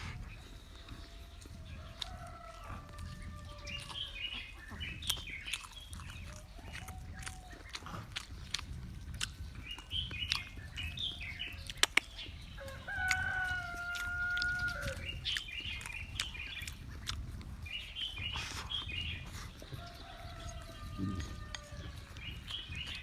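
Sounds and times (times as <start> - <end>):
chickens clucking: 0.0 - 23.0
sharp clicks: 11.7 - 12.2.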